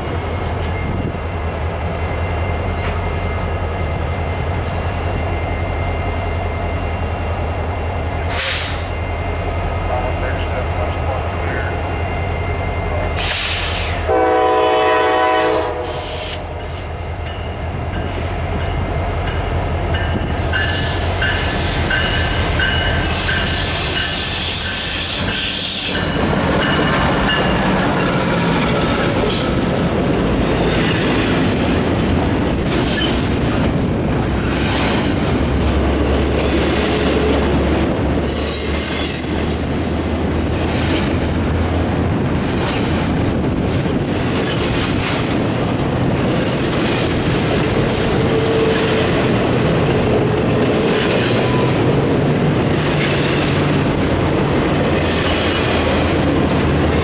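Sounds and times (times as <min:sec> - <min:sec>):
high wheel squeals: 0:00.0 - 0:14.1, 0:15.4 - 0:41.7, 0:45.9 - 0:57.0
train wheels rolling on rails: 0:00.0 - 0:57.0
locomotive horn blast: 0:13.4 - 0:16.4.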